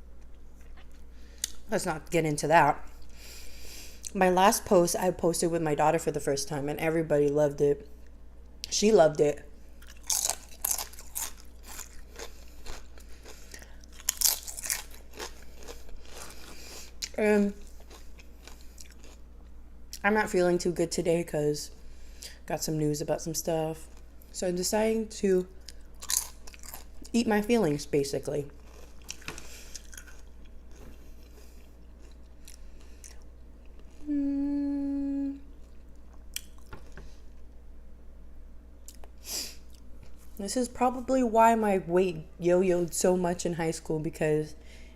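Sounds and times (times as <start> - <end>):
chips crunched and chewed: 9.8 - 19.2, 25.6 - 27.1, 28.6 - 34.0
person humming mmm: 33.9 - 35.6.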